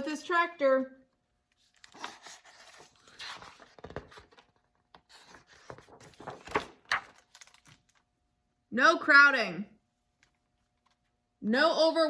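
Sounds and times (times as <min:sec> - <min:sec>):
paper rustling and scratching: 0:01.6 - 0:07.9.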